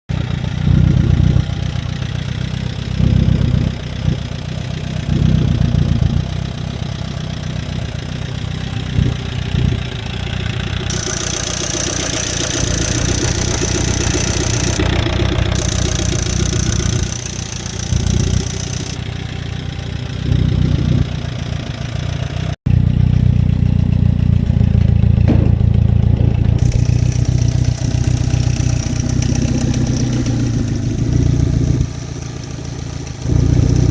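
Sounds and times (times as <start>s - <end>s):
car engine running: 0.1s - 33.9s.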